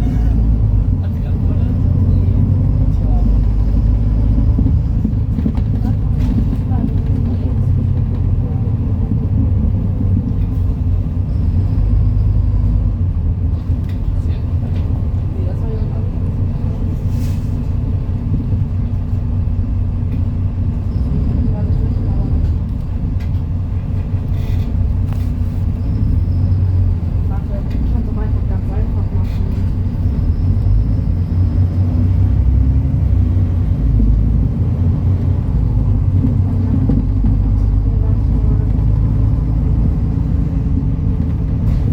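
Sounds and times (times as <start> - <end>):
bus diesel engine rumbling: 0.0 - 41.9.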